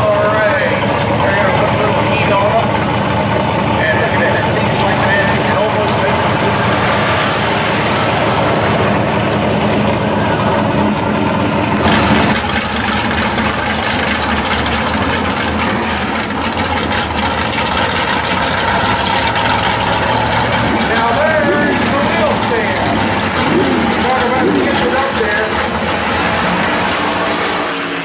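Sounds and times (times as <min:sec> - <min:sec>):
car engines idling: 0:00.0 - 0:28.0.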